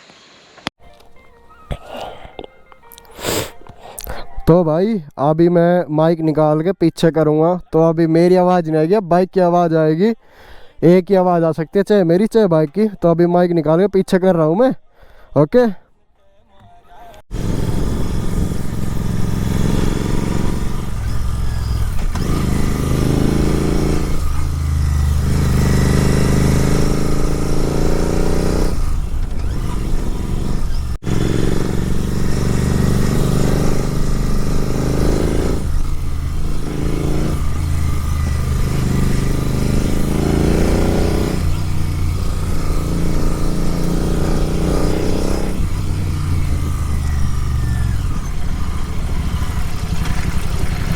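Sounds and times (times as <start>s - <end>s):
motorbike engine revving: 17.3s - 50.9s.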